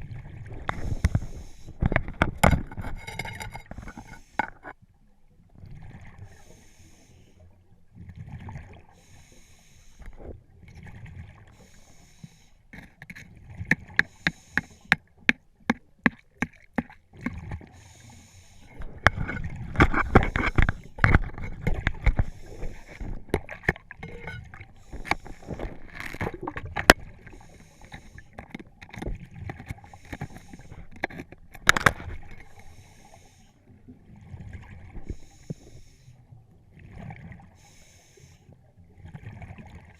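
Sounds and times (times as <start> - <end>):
regulator inhale hiss: 0.7 - 1.8, 6.3 - 7.4, 9.0 - 10.2, 11.5 - 12.7, 14.0 - 15.0, 17.7 - 18.9, 22.0 - 23.3, 24.8 - 25.8, 27.2 - 28.4, 29.8 - 31.0, 32.4 - 33.6, 35.0 - 36.2, 37.6 - 38.6.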